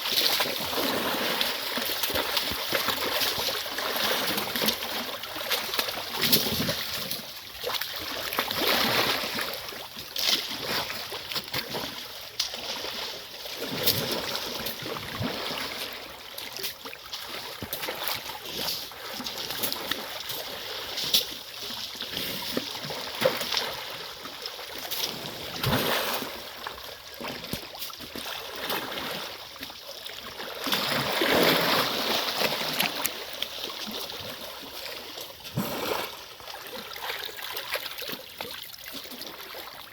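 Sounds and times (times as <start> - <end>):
mud and water splashing: 0.0 - 39.9.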